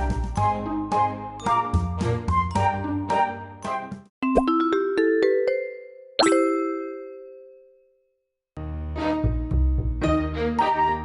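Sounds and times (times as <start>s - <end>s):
upbeat light background music: 0.0s - 5.6s.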